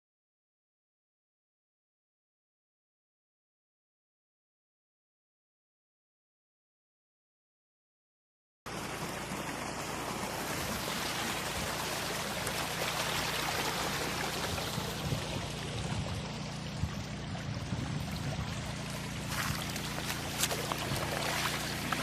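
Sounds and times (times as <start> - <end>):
small petrol engine humming: 8.7 - 22.0
water gushing from pump: 8.7 - 22.0.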